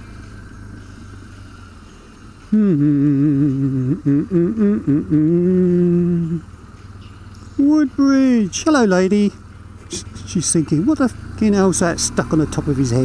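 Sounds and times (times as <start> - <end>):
motorcycle engine running: 0.0 - 13.0
man humming: 2.5 - 6.5.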